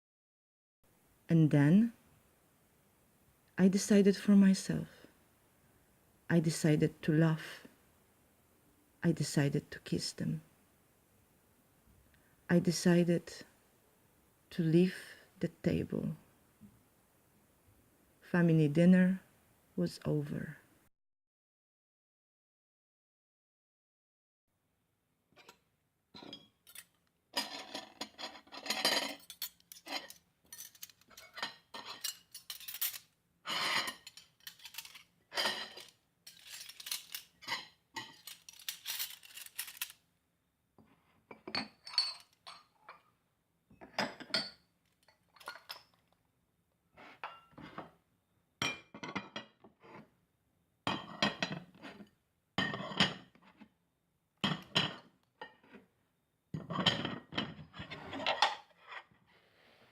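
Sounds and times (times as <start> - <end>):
plates cutlery and glasses clinking: 26.2 - 39.9, 41.3 - 43.1, 43.8 - 46.0, 47.2 - 47.9, 50.9 - 53.3, 54.4 - 55.7, 56.6 - 59.0.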